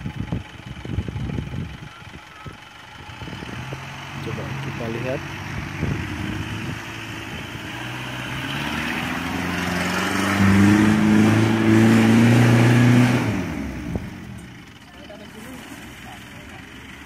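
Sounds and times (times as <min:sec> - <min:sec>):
car engine revving hard: 0:03.1 - 0:14.3.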